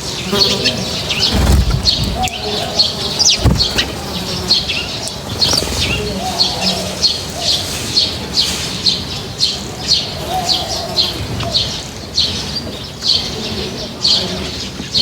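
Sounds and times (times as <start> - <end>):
lower bird calls: 0.0 - 7.8
small birds chirping: 0.0 - 15.0.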